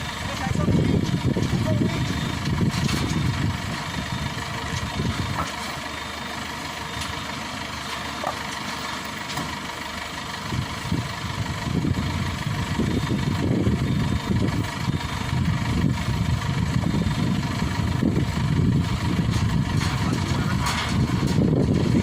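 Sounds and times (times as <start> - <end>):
combine harvester engine rumble: 0.0 - 22.0.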